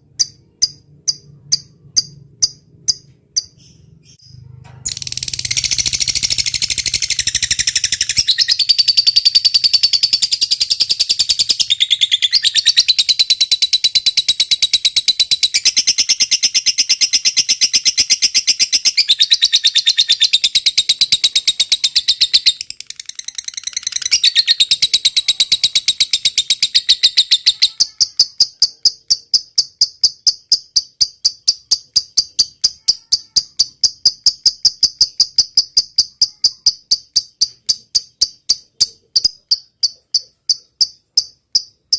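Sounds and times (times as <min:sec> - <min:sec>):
birds chirping and trilling: 0:00.0 - 0:33.2.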